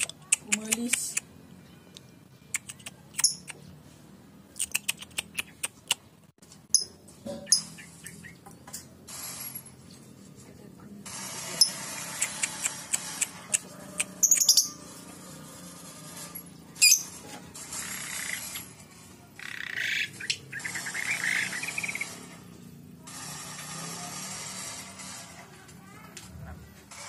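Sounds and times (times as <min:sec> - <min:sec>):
birds chirping: 0:06.7 - 0:09.0, 0:11.6 - 0:15.1, 0:19.4 - 0:22.5.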